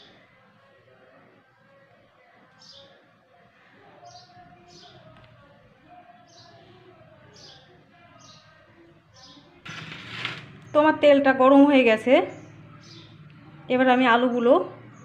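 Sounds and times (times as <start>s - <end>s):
distant voices: 1.2s - 15.0s
bird chirping: 12.2s - 13.6s.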